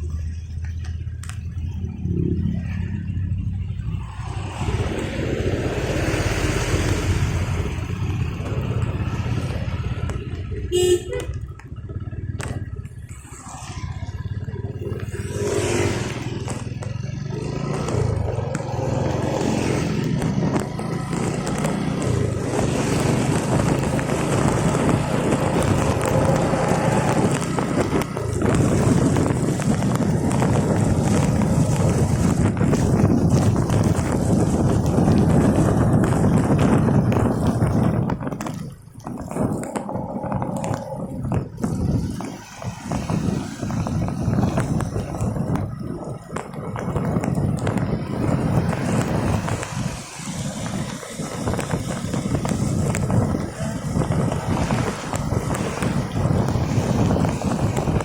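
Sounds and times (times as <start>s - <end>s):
vehicle engines running: 0.0s - 58.0s
short horn toot: 10.7s - 11.4s.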